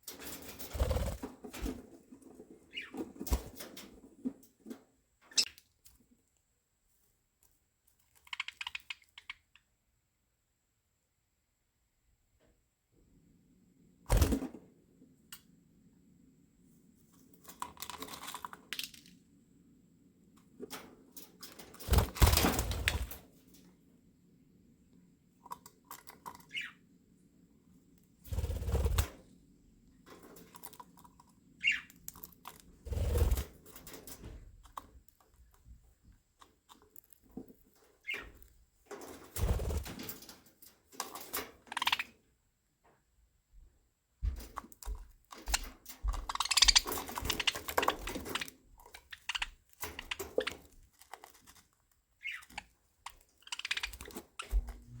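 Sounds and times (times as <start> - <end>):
budgerigars rustling: 2.5 - 3.8, 26.2 - 26.8, 31.6 - 32.1, 38.0 - 38.4, 45.4 - 51.6, 52.2 - 54.8.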